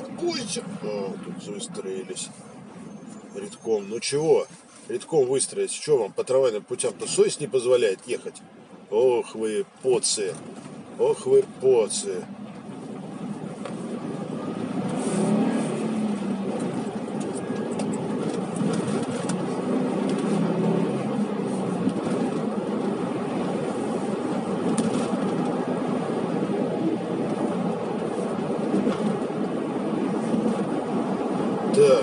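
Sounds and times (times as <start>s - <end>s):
road noise: 0.0s - 32.0s
car engine running: 10.2s - 32.0s.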